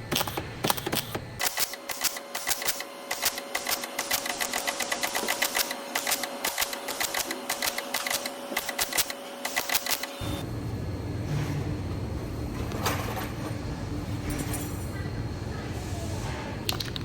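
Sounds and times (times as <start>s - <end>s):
rapid mechanical clicking: 0.0s - 10.2s.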